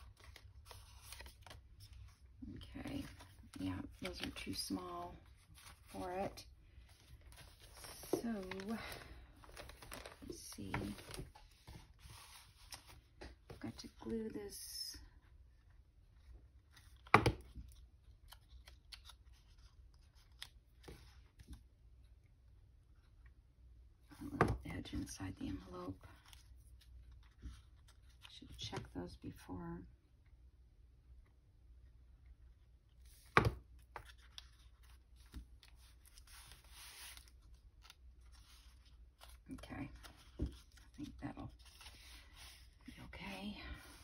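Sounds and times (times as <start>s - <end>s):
paper rustling: 0.0s - 2.2s, 3.0s - 13.5s, 33.0s - 44.0s
scratchy paper rustle: 33.9s - 44.0s.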